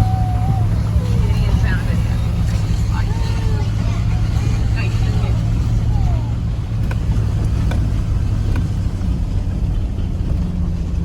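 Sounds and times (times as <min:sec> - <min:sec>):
car engine and road drone: 0:00.0 - 0:11.0.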